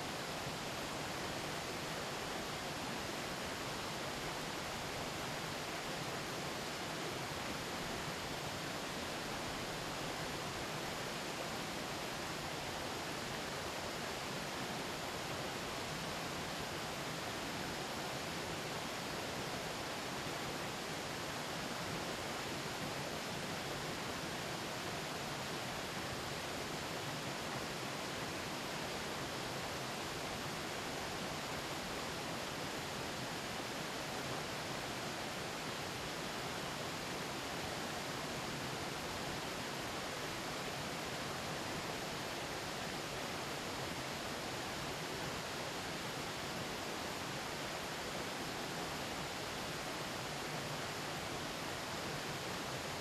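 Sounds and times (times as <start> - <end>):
mountain stream babbling: 0.0 - 53.0
river burbling over rocks: 0.0 - 53.0.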